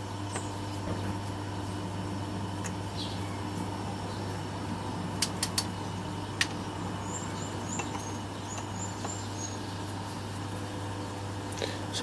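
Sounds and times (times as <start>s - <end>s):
steady low hum: 0.0s - 12.0s
sharp clicks: 5.2s - 5.7s
high bird chirps: 6.8s - 9.9s.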